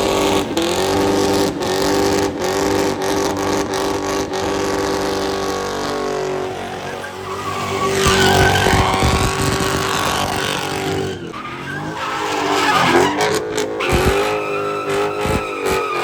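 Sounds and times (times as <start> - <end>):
tire squeal and scrubbing: 0.0 - 16.0
car engine held at steady revs: 8.0 - 11.1, 13.0 - 14.4.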